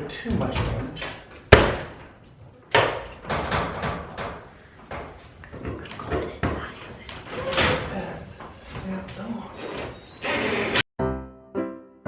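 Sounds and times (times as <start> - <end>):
garage door knocks and rattles: 0.2 - 5.8
garage door banging: 0.2 - 6.7, 7.3 - 8.4.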